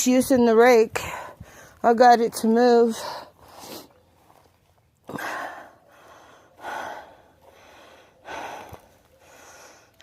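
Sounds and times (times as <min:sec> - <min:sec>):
woman breathing hard: 0:05.1 - 0:10.0.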